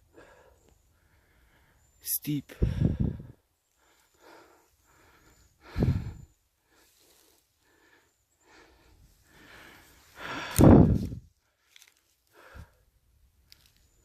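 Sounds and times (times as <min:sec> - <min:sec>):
person breathing hard: 0:00.0 - 0:01.9, 0:02.6 - 0:11.3, 0:12.3 - 0:12.9.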